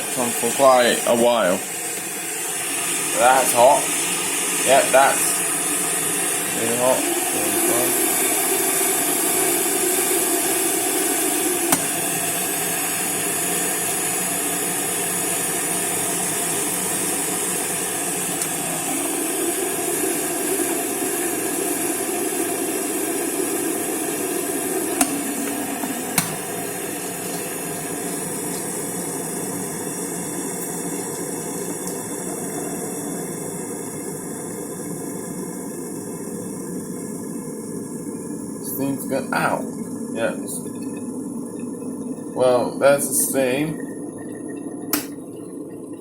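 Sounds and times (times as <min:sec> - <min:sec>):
electric kettle boiling water: 0:00.0 - 0:46.0.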